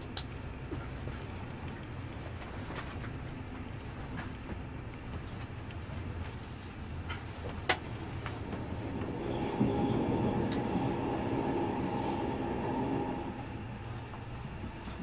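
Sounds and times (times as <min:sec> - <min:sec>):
train rumbling on rails: 0:00.0 - 0:15.0
humming tone: 0:08.2 - 0:14.2.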